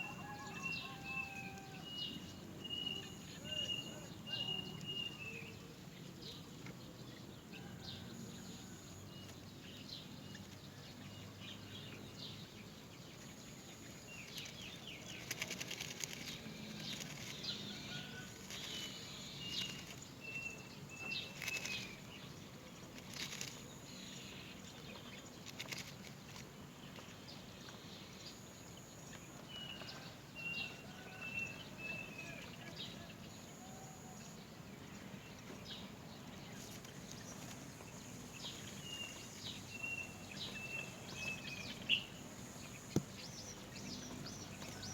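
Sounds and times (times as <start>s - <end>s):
rustling and wing fluttering: 13.8s - 20.3s, 21.0s - 27.2s.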